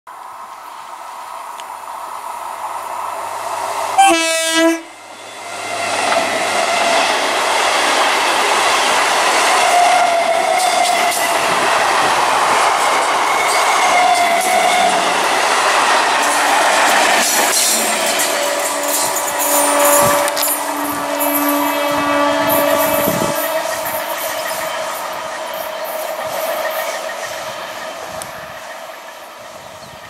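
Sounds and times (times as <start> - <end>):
train wheels on rails: 0.1 - 30.0
train horn blast: 4.0 - 4.9, 18.2 - 23.6.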